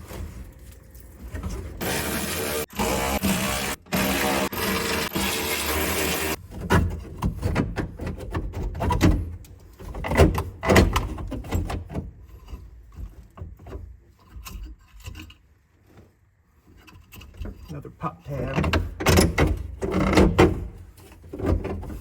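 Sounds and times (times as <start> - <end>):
small power tool motor: 1.8 - 6.4
knocks and scrapes on metal: 6.3 - 22.0.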